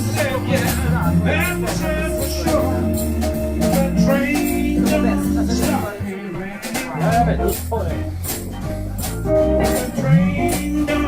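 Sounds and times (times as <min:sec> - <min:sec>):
drum kit cymbal strokes: 0:00.0 - 0:06.0
bass guitar line: 0:00.0 - 0:11.0
electric guitar: 0:00.0 - 0:11.0
organ: 0:00.0 - 0:11.0.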